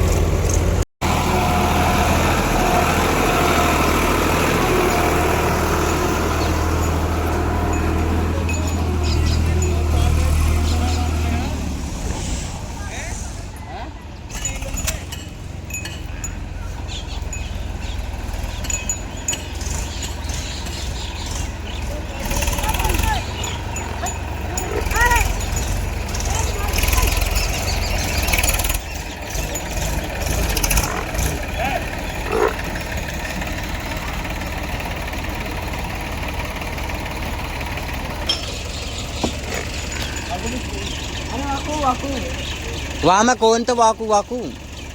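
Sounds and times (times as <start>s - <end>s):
diesel engine rumbling: 0.0s - 44.9s
light metallic clinks: 5.9s - 10.2s, 14.3s - 20.7s, 23.0s - 31.0s, 38.2s - 41.1s.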